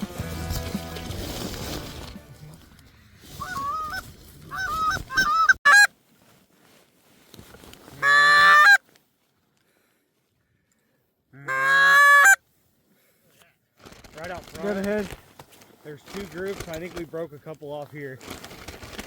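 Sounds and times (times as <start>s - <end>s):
geese honking: 2.5s - 5.9s, 8.0s - 8.8s, 11.4s - 12.4s.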